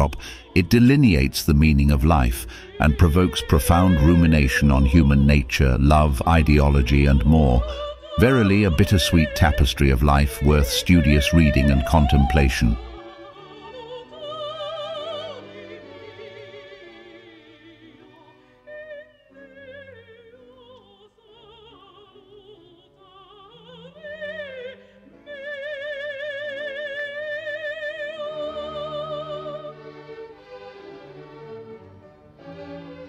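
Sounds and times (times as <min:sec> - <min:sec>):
orchestral accompaniment: 0:00.0 - 0:19.6, 0:28.2 - 0:33.0
operatic singing with vibrato: 0:00.0 - 0:31.8.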